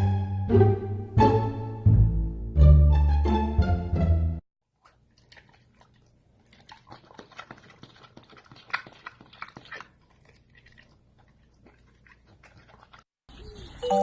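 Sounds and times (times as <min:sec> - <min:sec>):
pet chewing and clicking: 0:04.8 - 0:13.1.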